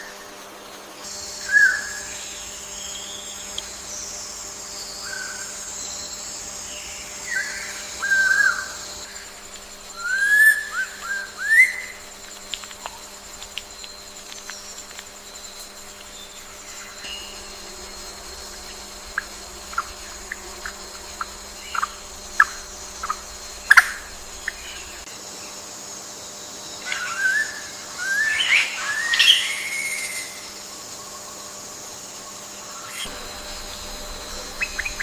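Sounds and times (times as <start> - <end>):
high-pitched insect drone: 0.0 - 35.0
birds chirping: 33.0 - 35.0.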